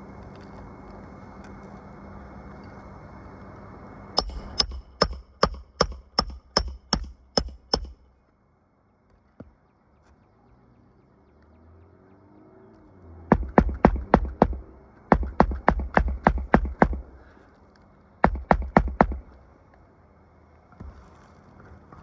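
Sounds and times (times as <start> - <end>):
steady background hum: 0.0 - 10.4, 13.2 - 22.0
hammer driving nails: 4.2 - 8.1, 13.3 - 17.2, 18.2 - 19.4.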